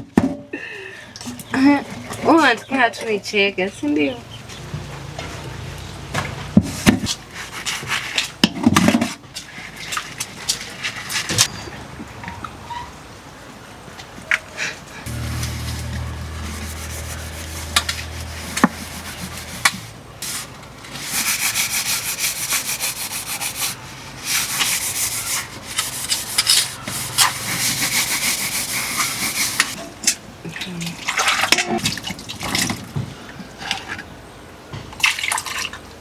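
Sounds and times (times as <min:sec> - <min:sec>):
low steady hum: 0:15.1 - 0:20.6
rhythmic scraping strokes: 0:15.1 - 0:29.8.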